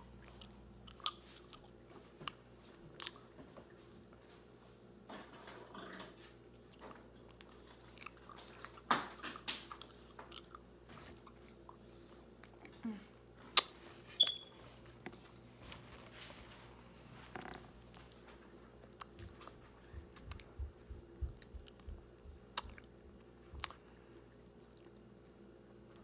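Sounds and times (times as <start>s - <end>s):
chewing sticky food: 0.0s - 4.2s, 6.6s - 13.8s, 18.8s - 25.8s.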